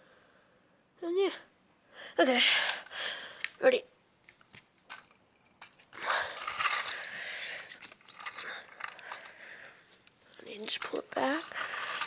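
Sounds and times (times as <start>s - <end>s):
toy car ratcheting and clicking: 4.9s - 9.4s, 10.0s - 12.0s.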